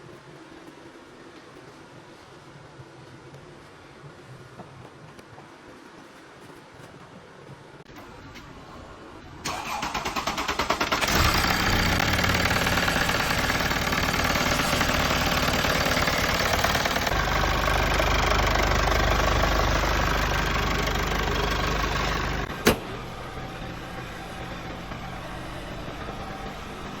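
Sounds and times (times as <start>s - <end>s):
diesel engine idling: 9.5s - 27.0s
sharp clunk: 22.5s - 23.0s.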